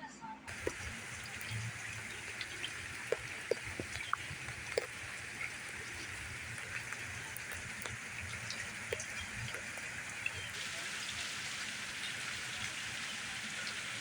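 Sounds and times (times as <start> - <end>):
heavy rain falling: 0.5 - 14.0.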